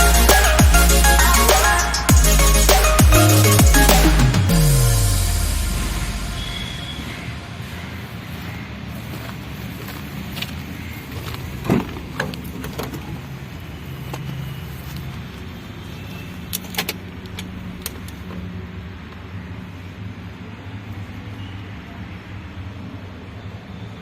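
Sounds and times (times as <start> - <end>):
vehicle engine humming: 0.0 - 9.1.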